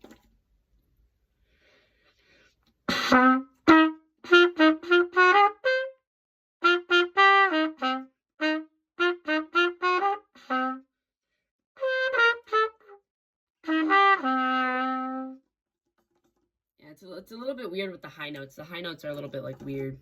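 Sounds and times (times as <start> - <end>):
cornet playing: 2.9 - 6.0, 6.6 - 10.8, 11.8 - 13.0, 13.6 - 15.4.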